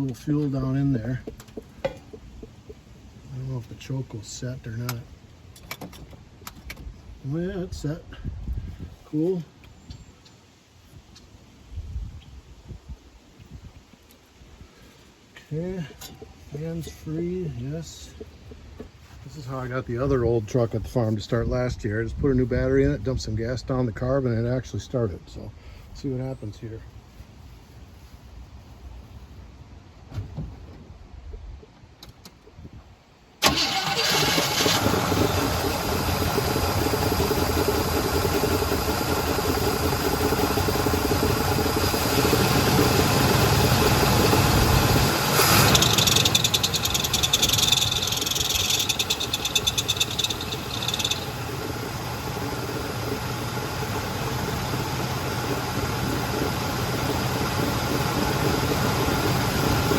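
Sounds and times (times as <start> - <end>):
high rapid rattling: 33.4 - 59.9
truck engine starting and idling: 33.4 - 59.9.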